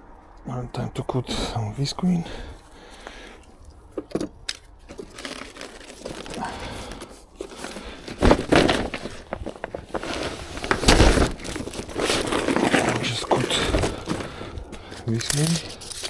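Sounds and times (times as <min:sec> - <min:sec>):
plastic sheet crinkling: 0:04.7 - 0:16.0.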